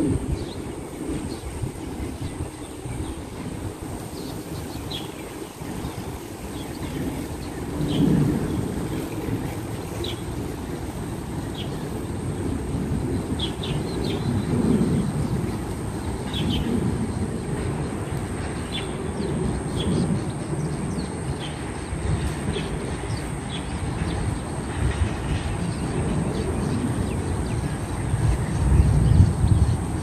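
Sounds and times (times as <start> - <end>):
bird chirping: 0.4 - 12.2.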